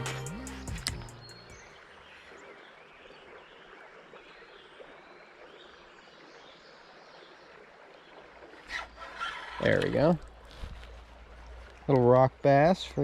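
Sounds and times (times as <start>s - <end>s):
flowing water hiss: 6.6s - 13.0s.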